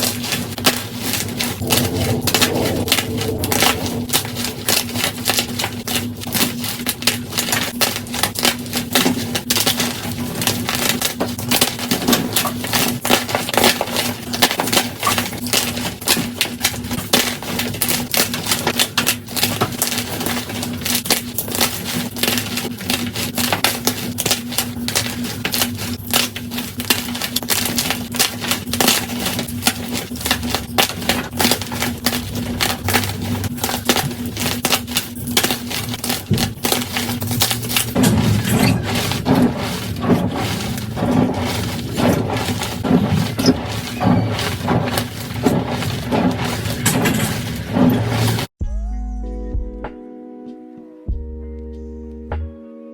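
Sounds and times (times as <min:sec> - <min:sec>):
steady low hum: 0:00.0 - 0:48.5
chalk crunching and crackling: 0:00.0 - 0:48.6.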